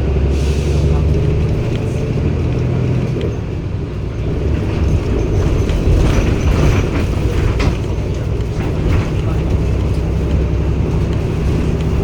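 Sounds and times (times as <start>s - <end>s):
diesel bus engine running: 0.0s - 12.0s
short knocks and rattles: 4.2s - 12.0s.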